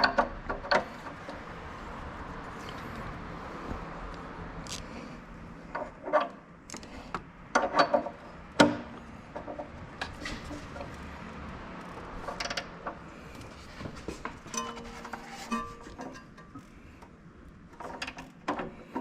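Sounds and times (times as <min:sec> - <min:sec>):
hand tools and metal parts clinking: 0:12.0 - 0:17.1.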